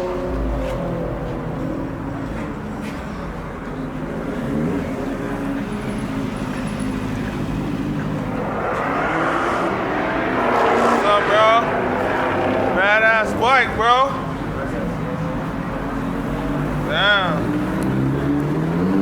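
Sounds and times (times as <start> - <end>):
car engines running: 0.0 - 19.0
rush of noise: 7.3 - 14.6.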